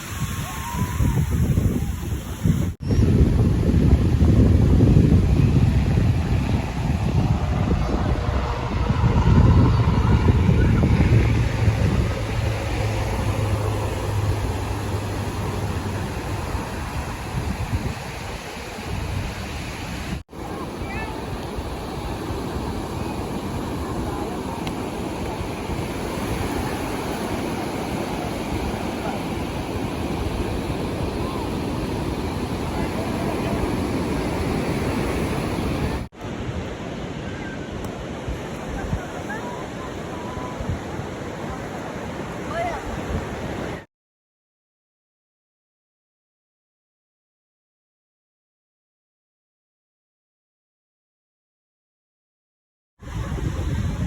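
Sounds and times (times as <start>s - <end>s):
wind buffeting microphone: 0.0s - 43.8s, 53.0s - 54.0s
baler engine drone: 5.6s - 16.5s.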